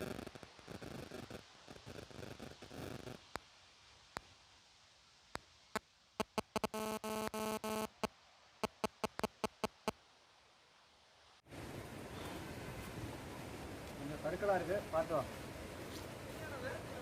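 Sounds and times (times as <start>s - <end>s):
outdoor ambience: 0.0s - 17.0s
short buzzy tones: 6.2s - 9.9s
sharp irregular electronic clicks: 6.2s - 10.0s.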